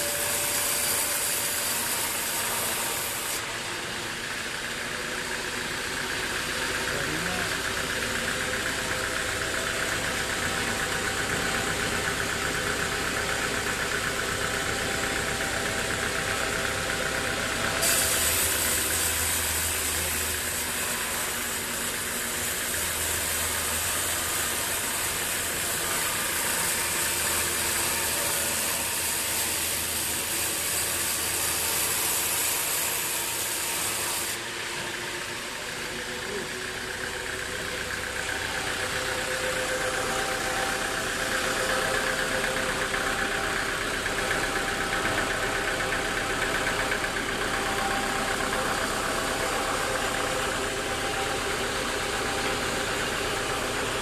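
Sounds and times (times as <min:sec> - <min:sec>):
sawmill machinery humming: 0:00.0 - 0:54.0
loud high hiss: 0:17.8 - 0:36.3.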